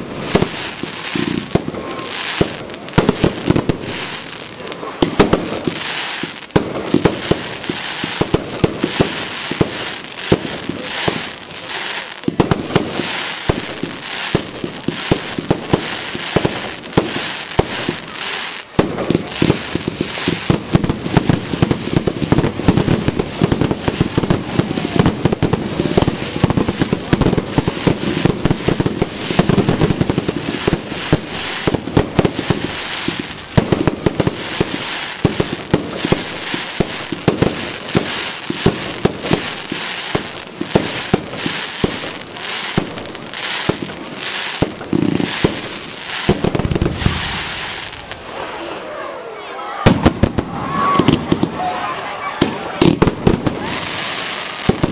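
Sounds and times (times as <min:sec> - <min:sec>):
fireworks bangs and crackling: 0:00.0 - 0:54.9.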